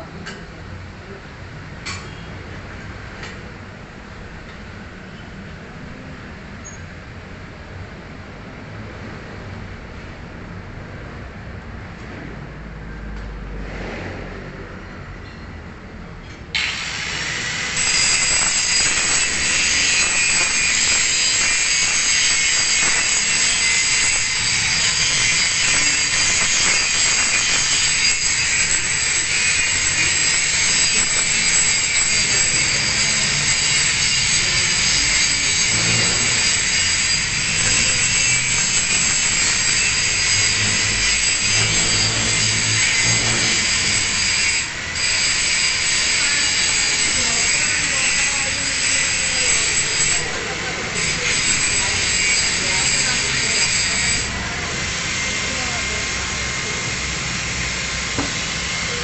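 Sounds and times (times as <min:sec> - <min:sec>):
angle grinder grinding steel: 0:16.6 - 0:59.0.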